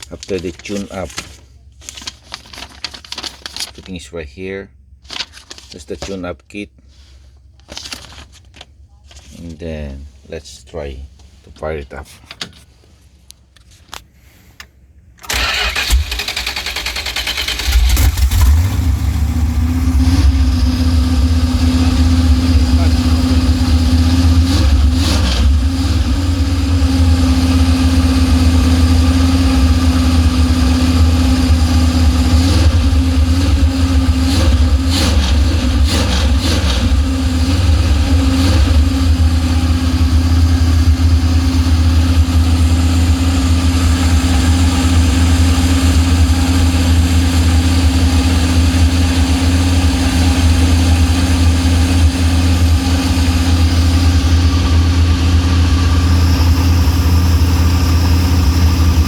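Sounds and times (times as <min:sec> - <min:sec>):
car engine idling: 0:15.3 - 0:59.0.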